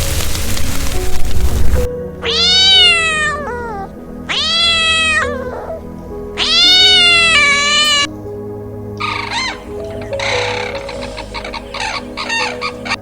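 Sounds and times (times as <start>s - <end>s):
cat meowing: 2.2s - 8.1s, 9.0s - 13.0s.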